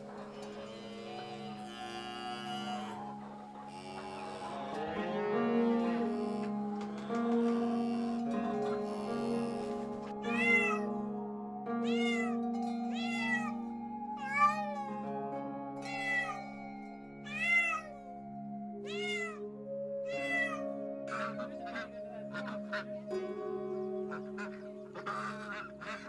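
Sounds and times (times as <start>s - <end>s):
soft background music: 0.0s - 26.0s
cat meowing: 1.5s - 3.0s, 10.2s - 10.9s, 11.8s - 13.6s, 14.2s - 14.9s, 15.8s - 16.5s, 17.3s - 18.0s, 18.8s - 19.4s, 20.1s - 20.7s.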